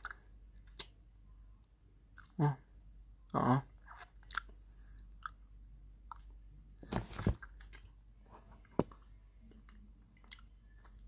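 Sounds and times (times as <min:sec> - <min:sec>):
person chewing: 0:03.8 - 0:06.4, 0:10.1 - 0:11.0.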